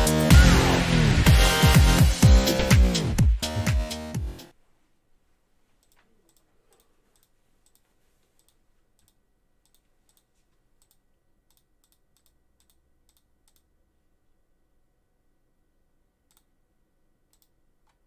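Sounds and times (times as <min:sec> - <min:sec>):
faint irregular clicks: 0:05.8 - 0:14.0, 0:16.2 - 0:16.6, 0:17.2 - 0:18.0.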